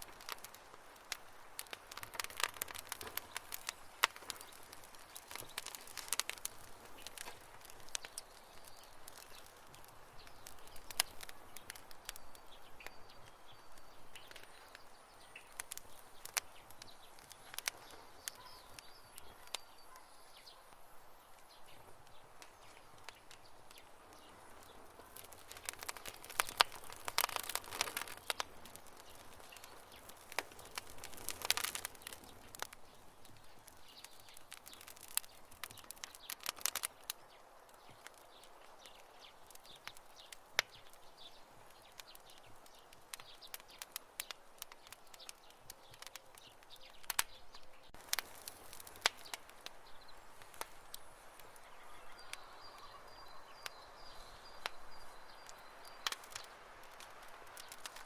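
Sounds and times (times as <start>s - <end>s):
campfire crackling: 0.0s - 58.0s
soft steady hiss: 0.0s - 58.0s.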